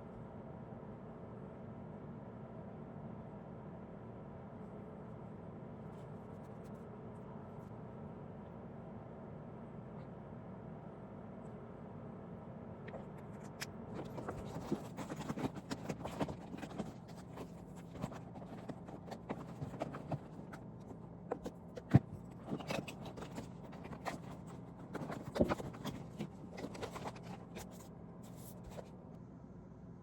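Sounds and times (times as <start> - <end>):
low steady hum: 0.0 - 30.0
objects being handled: 12.9 - 28.9.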